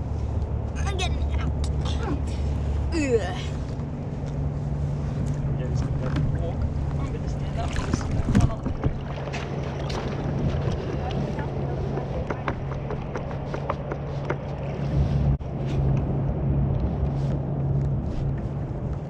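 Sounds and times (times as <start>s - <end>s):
steady low hum: 0.0s - 19.0s
water splashing and lapping: 1.6s - 16.0s
wind on microphone: 3.6s - 19.0s.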